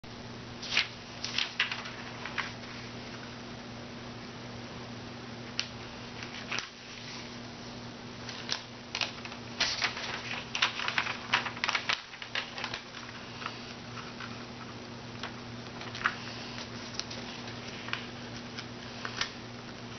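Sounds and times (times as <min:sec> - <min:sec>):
paper being folded and creased: 0:00.6 - 0:02.9, 0:05.6 - 0:07.4, 0:08.2 - 0:14.7, 0:15.3 - 0:19.4.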